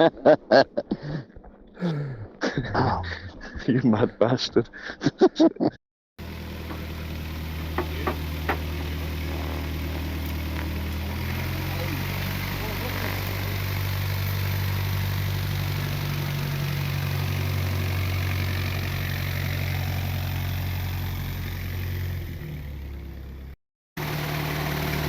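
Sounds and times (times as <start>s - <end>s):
motorcycle engine idling: 6.2s - 25.0s.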